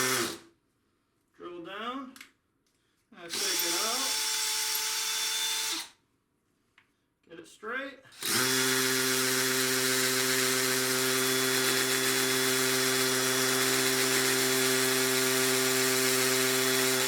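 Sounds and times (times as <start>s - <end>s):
cordless hammer drill whirring: 0.0s - 0.4s, 3.3s - 6.0s, 8.2s - 17.0s.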